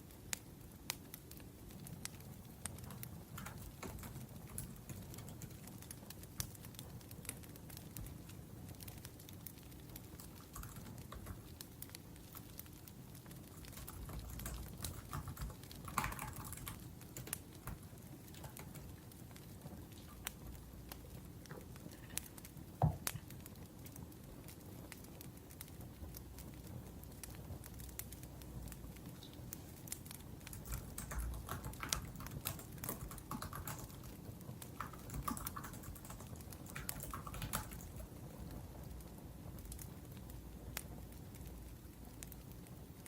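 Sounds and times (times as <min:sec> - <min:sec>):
wood fire crackling: 0:00.0 - 0:43.0
laptop keyboard typing: 0:02.7 - 0:05.6, 0:10.0 - 0:11.6, 0:13.4 - 0:19.0, 0:30.4 - 0:38.1.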